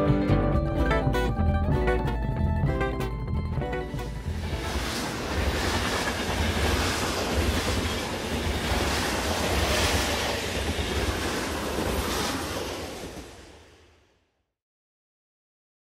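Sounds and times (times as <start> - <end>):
steel wheels rumbling on rails: 3.8 - 14.0.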